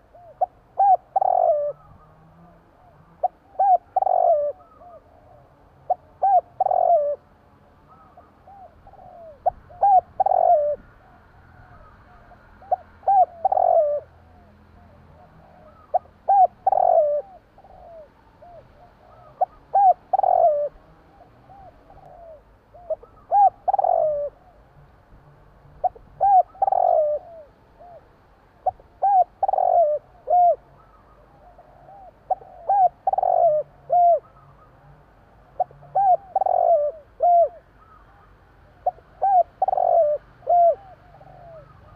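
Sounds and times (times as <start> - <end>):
dove cooing: 0.0 - 24.8, 25.7 - 41.9.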